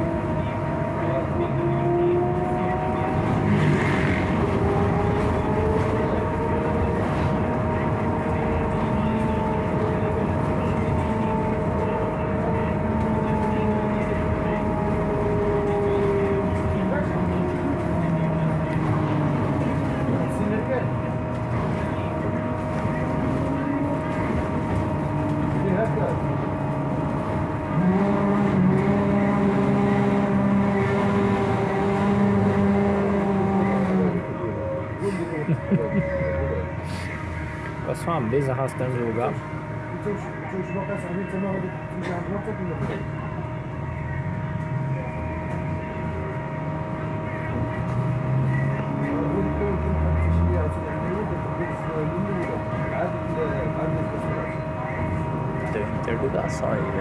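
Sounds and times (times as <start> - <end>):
electric drive whine: 0.0 - 41.8
low road rumble: 0.0 - 57.0
steady droning tone: 0.0 - 57.0.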